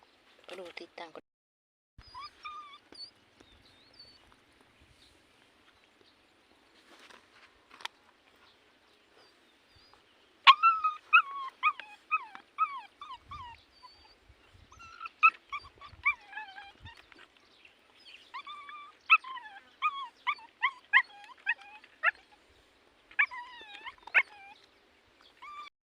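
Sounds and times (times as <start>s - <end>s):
dog whimpering: 2.0s - 3.1s, 10.5s - 17.0s, 18.3s - 22.4s, 23.2s - 24.6s, 25.4s - 25.7s.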